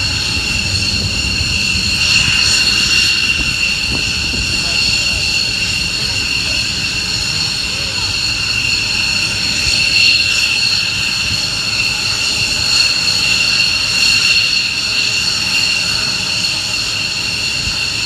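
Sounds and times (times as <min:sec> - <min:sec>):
jet engine rushing noise: 0:00.0 - 0:18.0
jet engines high-pitched whine: 0:00.0 - 0:18.0.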